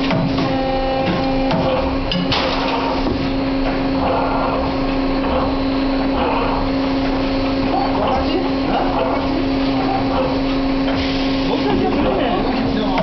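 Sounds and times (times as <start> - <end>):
machine electric hum: 0.0 - 13.0.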